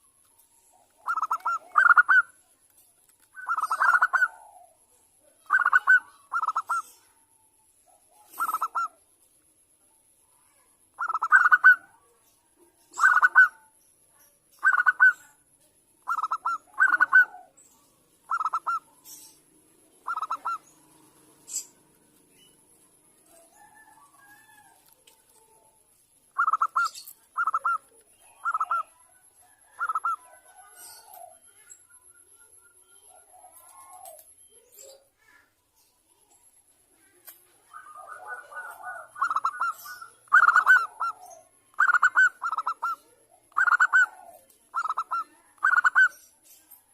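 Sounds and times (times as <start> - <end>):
dove pulsed coos: 0.0 - 2.4, 3.4 - 9.1, 10.9 - 12.1, 12.9 - 13.7, 14.6 - 22.2, 26.3 - 35.0, 37.0 - 46.3.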